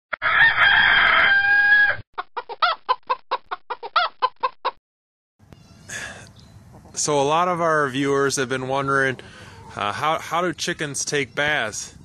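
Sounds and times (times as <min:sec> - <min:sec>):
rooster crowing: 0:00.2 - 0:02.0
hen clucks: 0:02.2 - 0:04.8, 0:06.6 - 0:07.0, 0:09.0 - 0:10.2.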